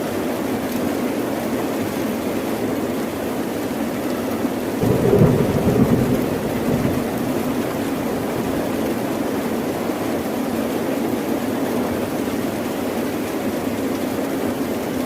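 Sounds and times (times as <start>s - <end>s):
steady rain falling: 3.0s - 15.0s
thunder rumbling: 4.8s - 9.3s.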